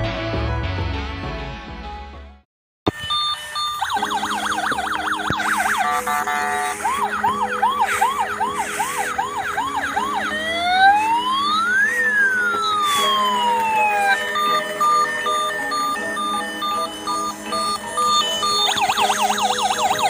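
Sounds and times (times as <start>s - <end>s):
short electronic beeps: 2.9s - 8.8s, 12.6s - 20.0s
toy police siren: 2.9s - 20.0s.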